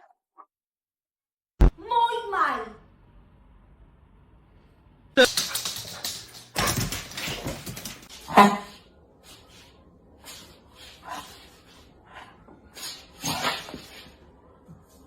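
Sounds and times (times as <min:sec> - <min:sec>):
dog barking: 0:08.2 - 0:08.8.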